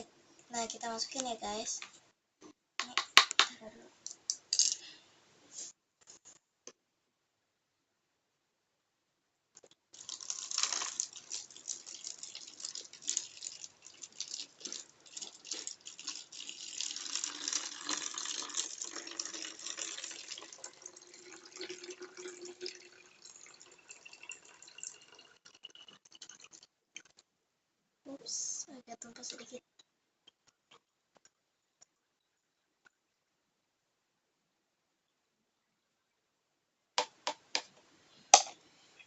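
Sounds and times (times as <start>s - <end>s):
liquid pouring into container: 10.0s - 26.7s.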